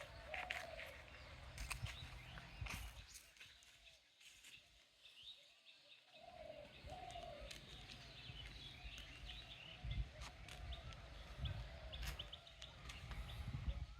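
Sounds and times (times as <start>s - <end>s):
drawn-out bird calls: 0.0s - 2.9s, 5.9s - 13.9s
small birds chirping: 0.0s - 13.9s.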